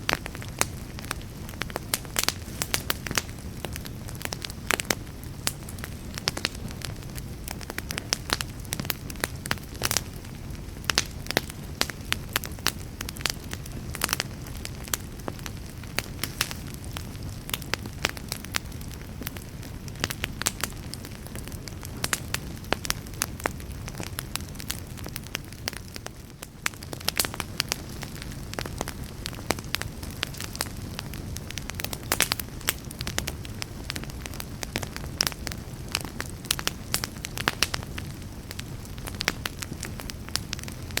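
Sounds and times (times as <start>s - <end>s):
logs crackling and popping: 0.0s - 41.0s
low rumble of flames: 0.0s - 41.0s.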